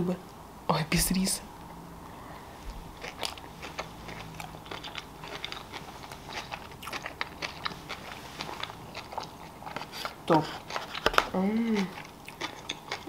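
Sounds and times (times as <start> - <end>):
person biting and chewing: 2.8 - 13.0.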